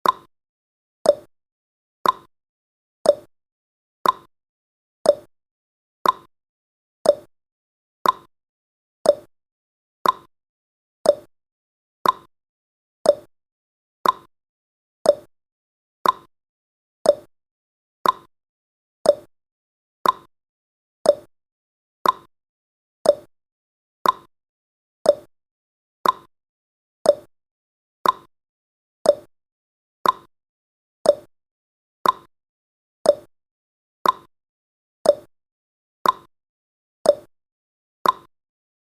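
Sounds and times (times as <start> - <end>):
clock ticking: 2.0 - 2.3, 4.0 - 4.3, 6.0 - 6.3, 8.0 - 8.3, 10.0 - 10.3, 12.0 - 12.3, 14.0 - 14.3, 15.1 - 15.3, 16.0 - 16.3, 18.0 - 18.3, 20.0 - 20.3, 21.1 - 21.3, 22.0 - 22.3, 24.0 - 24.3, 26.0 - 26.3, 28.0 - 28.3, 29.1 - 29.3, 30.0 - 30.3, 31.1 - 31.3, 32.0 - 32.3, 33.1 - 33.3, 34.0 - 34.3, 35.1 - 35.3, 36.0 - 36.3, 38.0 - 38.3.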